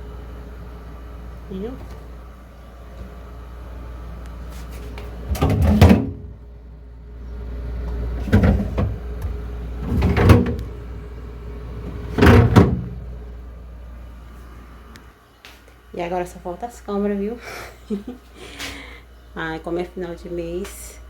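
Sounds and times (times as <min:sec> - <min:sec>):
steady low hum: 0:00.0 - 0:21.0
doors banging and rattling: 0:05.2 - 0:06.4, 0:08.2 - 0:10.8, 0:11.8 - 0:13.1.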